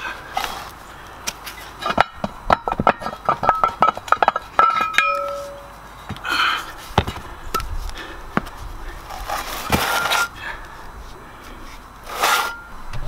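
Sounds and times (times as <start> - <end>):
heavy metal parts scraping: 1.4 - 5.8, 9.1 - 10.4, 11.7 - 13.0
metal knocks and clanks: 1.8 - 5.7.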